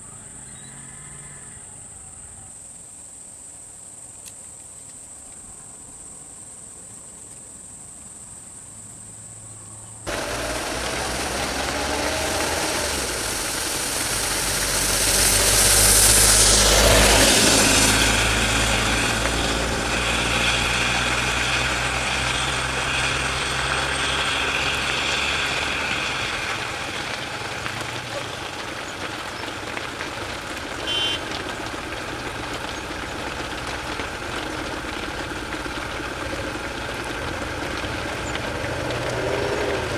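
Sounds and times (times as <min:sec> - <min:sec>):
loud vehicle engine running: 0:10.1 - 0:39.9.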